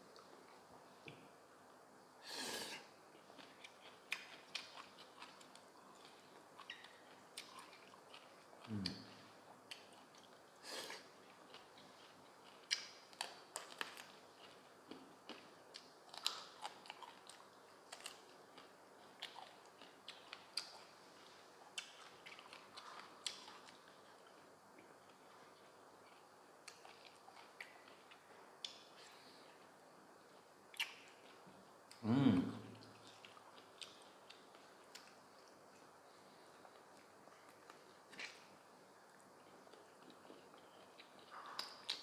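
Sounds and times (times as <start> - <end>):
person chewing crunchy food: 2.6 - 9.0, 9.7 - 24.5, 39.2 - 42.0.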